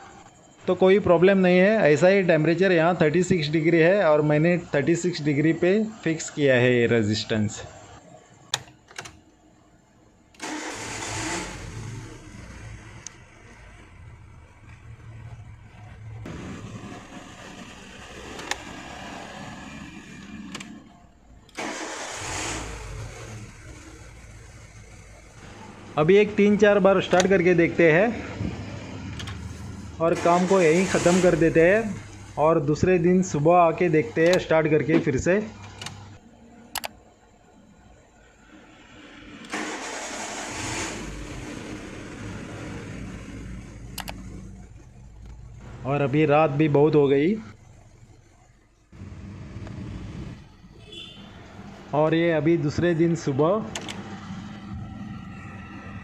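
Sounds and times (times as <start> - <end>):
car engine starting and running: 10.3 - 36.9, 38.4 - 56.0
sharp clicks: 36.7 - 37.0, 43.8 - 44.3.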